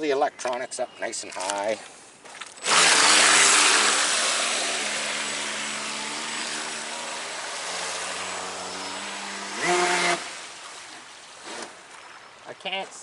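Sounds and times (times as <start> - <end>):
model boat motor whine: 2.6 - 10.6.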